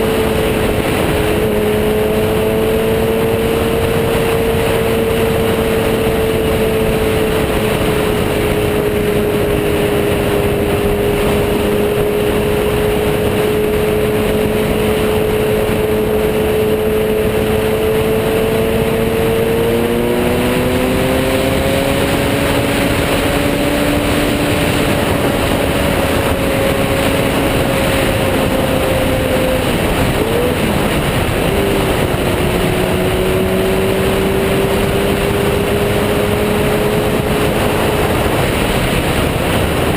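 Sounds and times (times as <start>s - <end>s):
motorcycle engine: 0.0s - 39.9s
wind noise: 0.0s - 39.9s.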